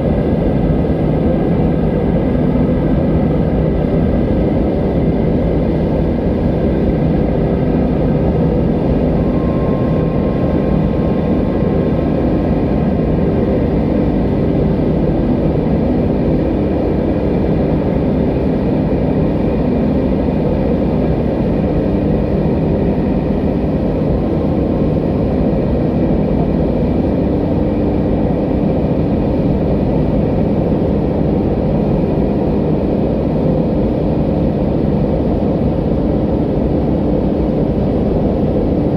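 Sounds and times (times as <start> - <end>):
faint wind whistling: 3.6 - 17.0.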